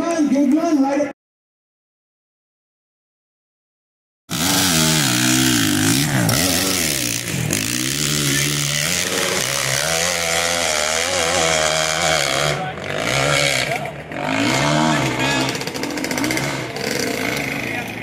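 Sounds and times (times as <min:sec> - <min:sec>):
dirt bike engine revving: 0:04.3 - 0:18.0.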